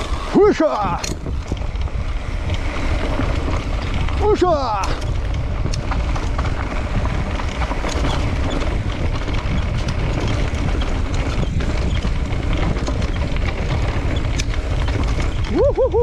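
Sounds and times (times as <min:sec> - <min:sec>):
bike rattling clicks and knocks: 0:00.0 - 0:16.0
bike tyres rolling on dirt: 0:00.0 - 0:16.0
wind buffeting microphone: 0:00.0 - 0:16.0.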